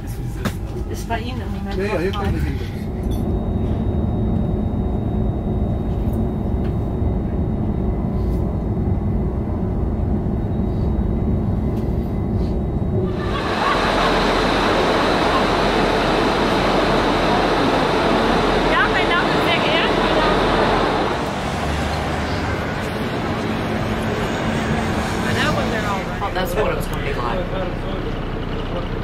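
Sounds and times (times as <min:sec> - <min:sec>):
train rumbling: 0:00.0 - 0:29.0
loud rushing hiss: 0:13.1 - 0:25.3.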